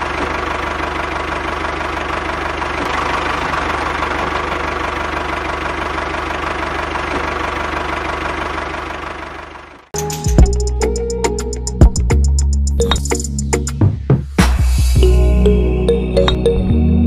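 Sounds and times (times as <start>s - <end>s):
engine idling with knocking pulse: 0.0s - 10.6s
music with a beat: 10.0s - 16.8s.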